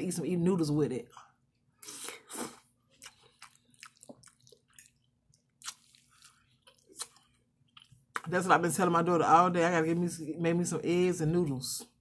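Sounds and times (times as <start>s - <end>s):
person chewing food: 1.8s - 8.3s
wet mouth sounds: 1.8s - 8.3s.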